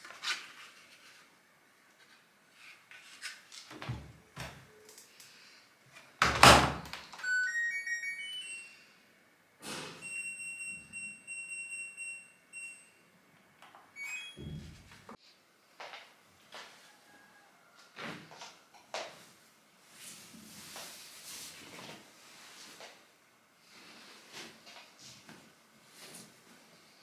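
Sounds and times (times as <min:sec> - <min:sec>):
electronic beeps: 0:07.2 - 0:08.9
steady electronic beep tone: 0:07.2 - 0:09.0.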